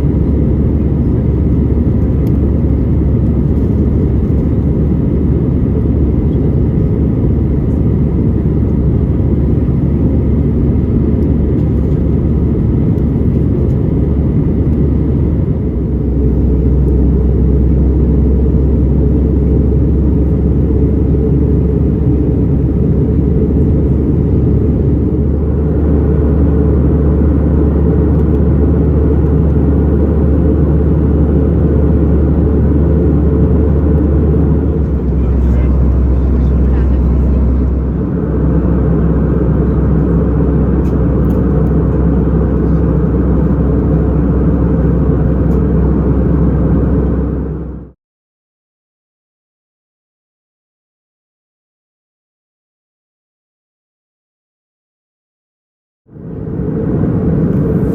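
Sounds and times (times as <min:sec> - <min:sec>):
engine drone: 0:00.0 - 0:48.0, 0:56.1 - 0:57.9
airflow rush: 0:32.4 - 0:44.2.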